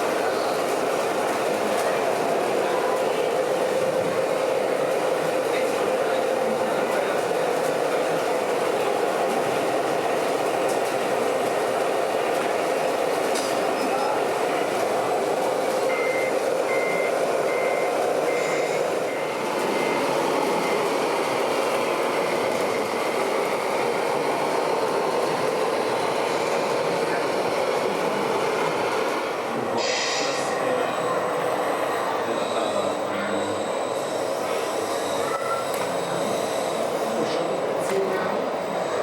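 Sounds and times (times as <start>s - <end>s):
reversing beeper beeps: 15.9s - 20.8s, 29.8s - 39.0s.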